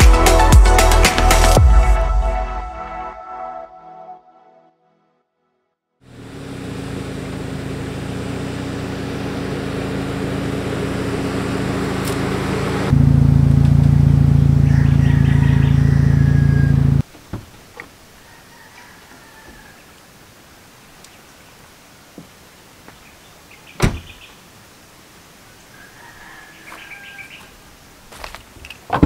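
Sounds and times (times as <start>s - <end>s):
car engine running: 6.0s - 17.0s.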